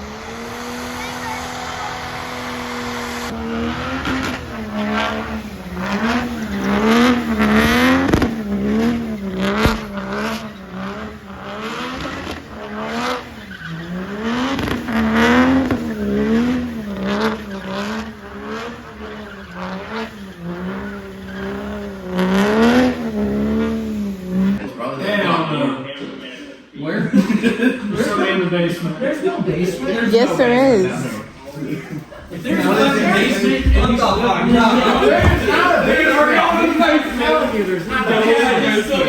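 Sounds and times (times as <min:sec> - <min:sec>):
tire squeal: 0:00.0 - 0:24.6
truck engine revving: 0:00.0 - 0:24.6, 0:32.3 - 0:39.0.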